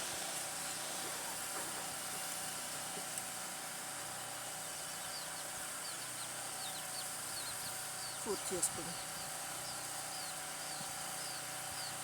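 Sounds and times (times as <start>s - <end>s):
faint construction engine hum: 0.0s - 12.0s
outdoor background hiss: 0.0s - 12.0s
faint bird chirps: 4.6s - 12.0s.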